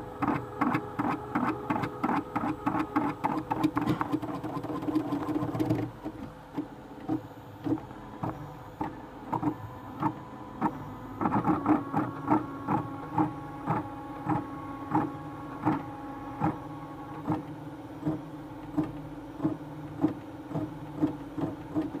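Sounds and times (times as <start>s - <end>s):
printer motors humming: 0.0s - 22.0s
whining tone: 9.6s - 17.3s.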